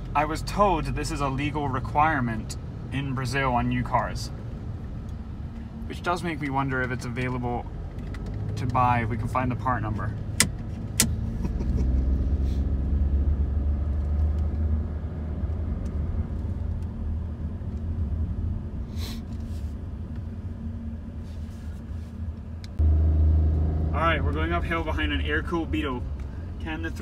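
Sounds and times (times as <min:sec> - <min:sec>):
car engine drone: 0:00.0 - 0:27.0
road rumble: 0:00.0 - 0:27.0.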